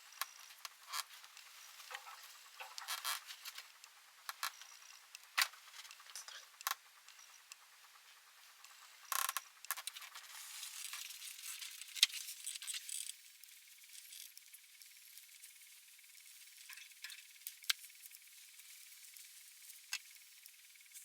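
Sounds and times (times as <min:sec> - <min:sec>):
faint hiss: 0:10.0 - 0:21.0.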